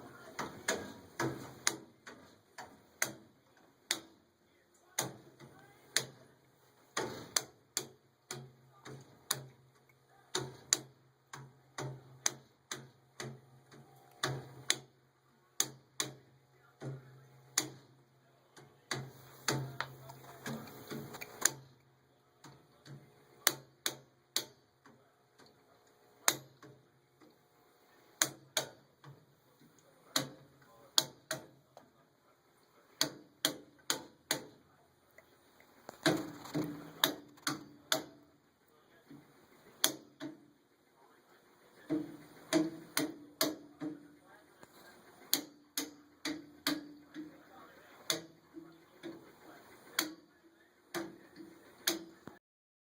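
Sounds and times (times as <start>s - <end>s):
furnace ticking and clicking: 0.0s - 27.4s, 28.1s - 52.4s.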